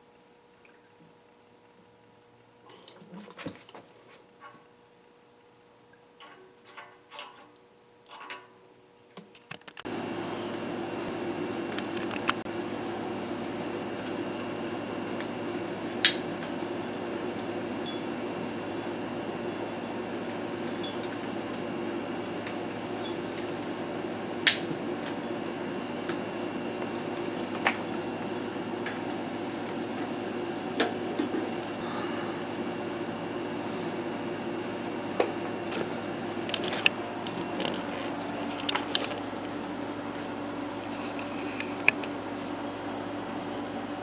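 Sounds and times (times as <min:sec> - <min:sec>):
gas burner humming: 0:09.8 - 0:44.0.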